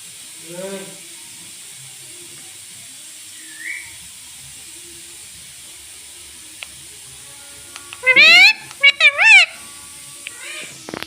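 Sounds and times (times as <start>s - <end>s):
background hiss: 0.0s - 11.0s
parrot rising whistle: 3.4s - 4.0s, 8.0s - 9.6s.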